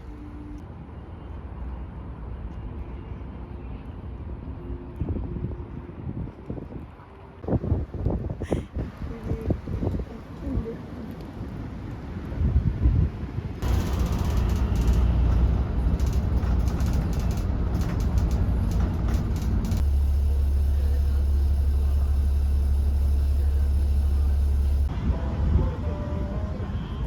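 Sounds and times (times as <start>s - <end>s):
moving vehicle rumble: 6.7s - 27.0s
sharp rattles and clicks: 13.6s - 24.9s
steady low hum: 13.6s - 26.0s.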